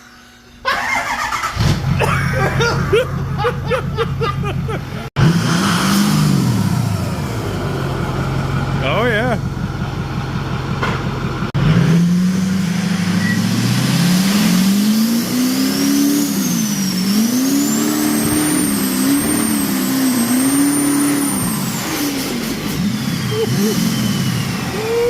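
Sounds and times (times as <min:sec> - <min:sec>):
diesel truck engine revving: 0:00.7 - 0:25.0
turbo whistle: 0:13.1 - 0:13.6, 0:22.8 - 0:25.0.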